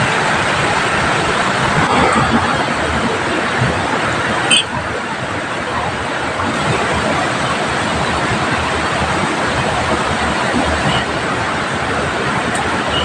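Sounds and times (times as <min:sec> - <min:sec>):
fast-flowing river rushing: 0:00.0 - 0:13.0
heavy rain falling: 0:00.0 - 0:13.0.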